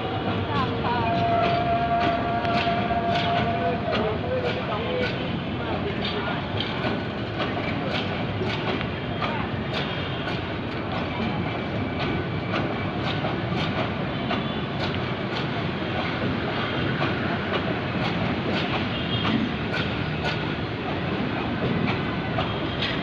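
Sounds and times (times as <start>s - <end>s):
train rumbling on rails: 0.0s - 23.0s
wheel clicks on rail joints: 1.1s - 11.2s, 12.0s - 23.0s.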